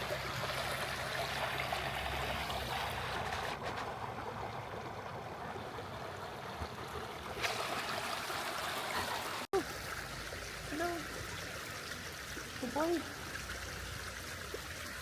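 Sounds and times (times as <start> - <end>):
creek water running: 0.0 - 15.0.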